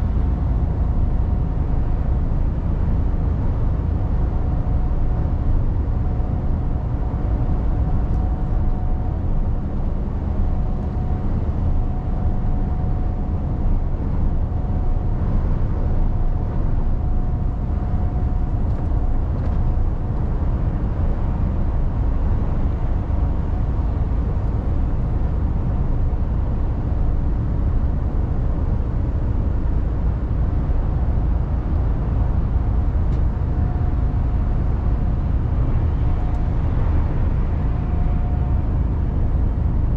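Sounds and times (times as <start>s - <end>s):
road rumble: 0.0s - 39.9s
faint high whine: 32.4s - 39.9s.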